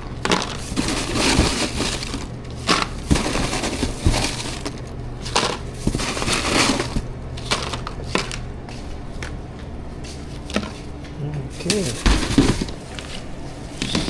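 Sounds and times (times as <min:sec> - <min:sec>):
chips crunching: 0:00.0 - 0:08.4, 0:11.5 - 0:14.0
low steady hum: 0:00.0 - 0:14.0.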